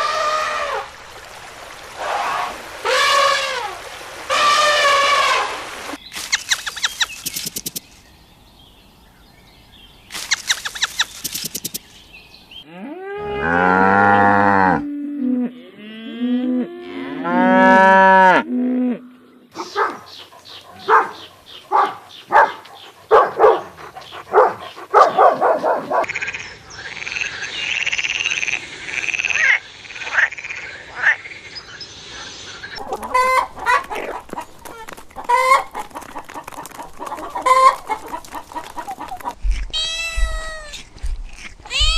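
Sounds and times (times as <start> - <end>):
cow mooing: 12.7 - 19.2.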